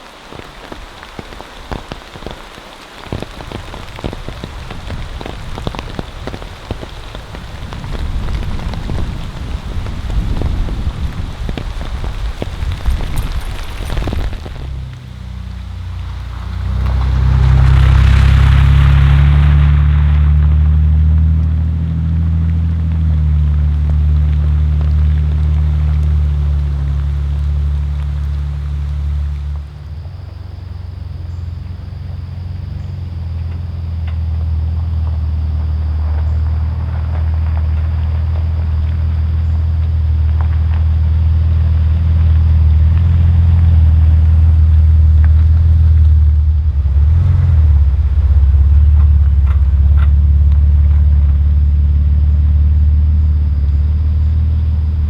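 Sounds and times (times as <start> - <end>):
engine humming: 0.0 - 55.0
light rattles: 11.3 - 17.6.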